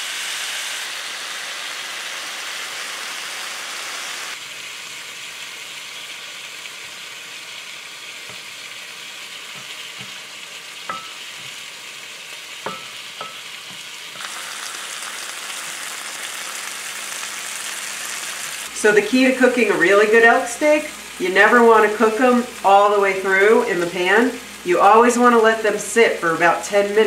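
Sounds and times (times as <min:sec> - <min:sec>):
mushrooms sizzling in a frying pan: 0:00.0 - 0:27.0
steaks searing loudly: 0:00.0 - 0:27.0
spatula knocking against pan: 0:09.5 - 0:10.2, 0:10.9 - 0:11.6, 0:12.6 - 0:13.9.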